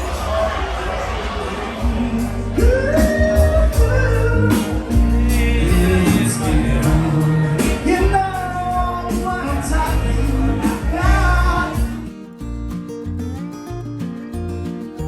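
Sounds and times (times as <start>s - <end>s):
steady drum beat: 1.8s - 12.1s
person singing: 1.8s - 12.2s
heavy bass line: 1.8s - 13.9s.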